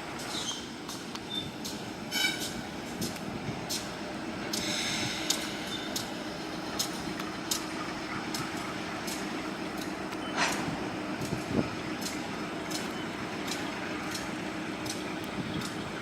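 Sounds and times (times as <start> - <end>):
locomotive engine hum: 0.0 - 16.0
short hiss: 4.5 - 6.0
sharp bright tick: 12.0 - 15.0.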